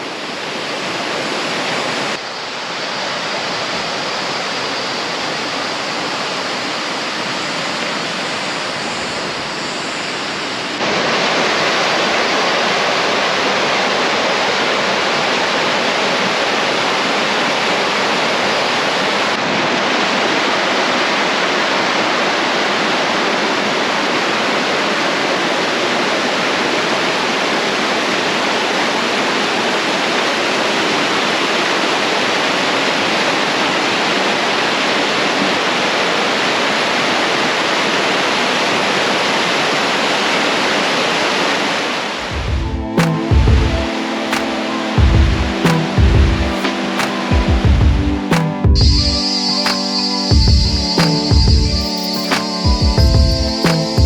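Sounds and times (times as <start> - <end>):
water rushing over rocks: 0.0 - 42.4.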